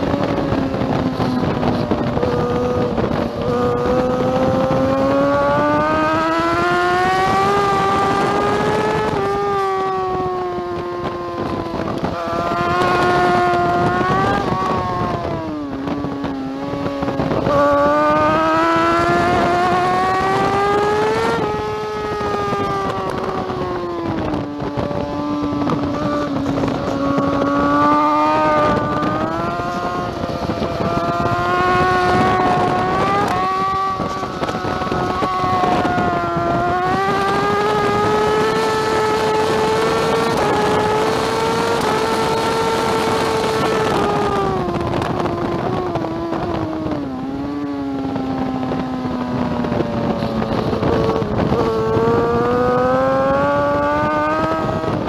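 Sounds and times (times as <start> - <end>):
motorcycle engine at high revs: 0.0 - 55.0.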